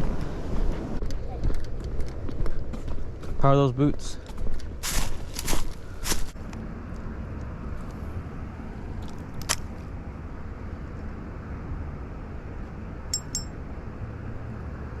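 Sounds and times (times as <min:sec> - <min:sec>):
ringing metallic clinks: 0:13.1 - 0:13.6.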